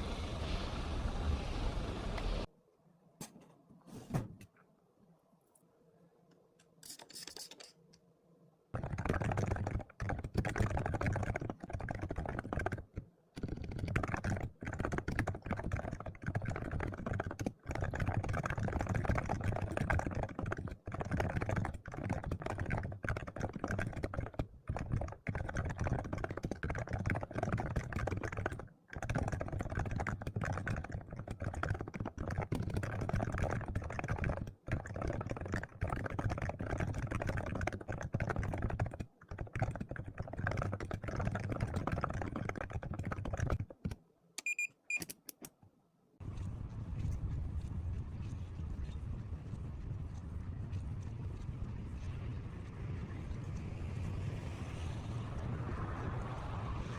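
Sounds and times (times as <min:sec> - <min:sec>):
typing on computer keyboard: 0:08.8 - 0:45.6.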